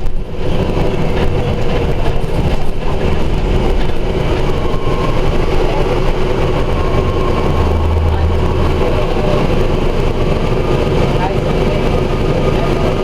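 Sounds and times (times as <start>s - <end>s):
bus engine and road noise: 0.0s - 13.0s
faint high whine: 2.8s - 11.7s.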